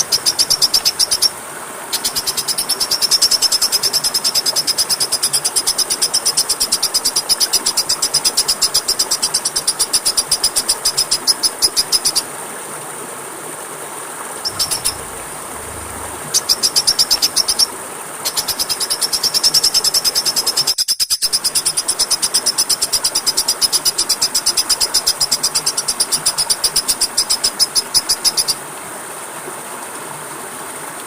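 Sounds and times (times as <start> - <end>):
steady hiss: 13.9 - 28.6
thin high whine: 14.5 - 17.8
small bird trilling: 14.5 - 20.5.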